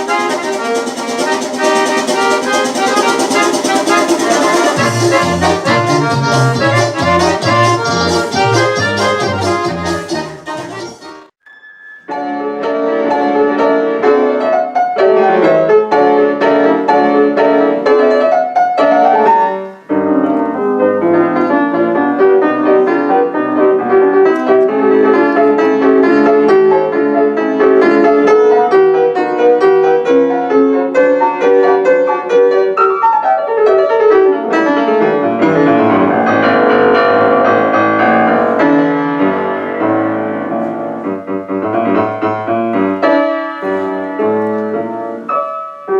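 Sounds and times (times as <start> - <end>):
piano playing quick piece: 0.0 - 45.9.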